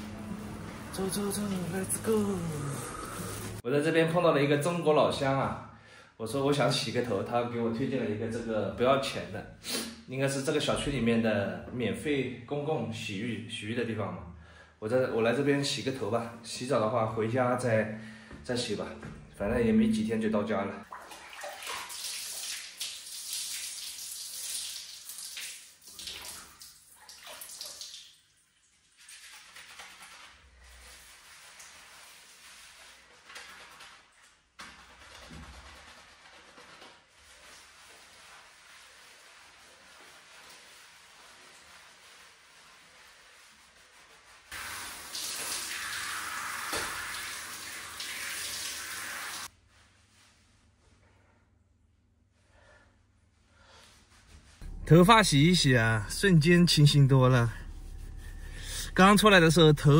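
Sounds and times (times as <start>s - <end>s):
running tap water splashing: 0.0s - 3.6s, 20.8s - 33.1s, 44.5s - 49.5s.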